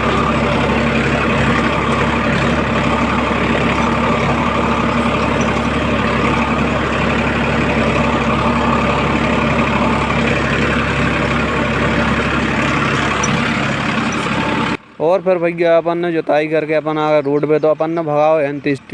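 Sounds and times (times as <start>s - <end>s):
tractor diesel engine running: 0.0s - 18.9s.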